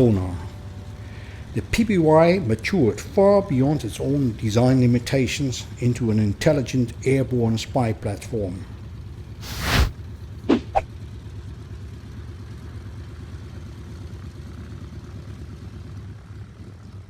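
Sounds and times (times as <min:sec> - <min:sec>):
twin radial engines droning: 0:00.0 - 0:17.0
sharp burst: 0:09.4 - 0:09.9.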